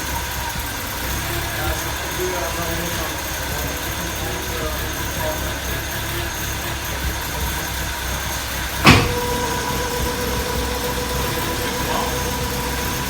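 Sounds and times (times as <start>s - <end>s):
car engine idling: 0.0s - 13.0s
steady whine: 0.0s - 13.0s
sharp knock: 8.8s - 9.3s.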